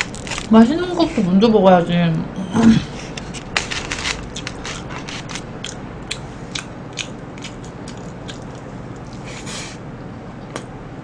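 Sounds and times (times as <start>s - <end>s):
crisp chewing crunches: 0.0s - 0.5s, 3.3s - 9.2s.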